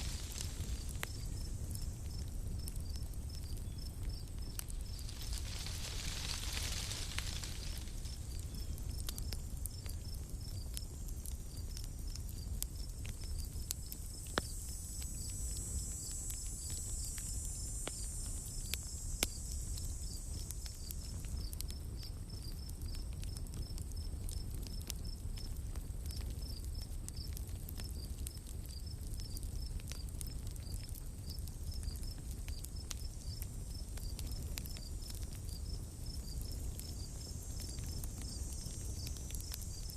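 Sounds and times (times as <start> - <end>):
high hiss: 0.0 - 3.0, 4.4 - 9.6, 13.8 - 21.3
campfire pops and crackles: 0.0 - 39.9
insect chirping: 0.0 - 39.9.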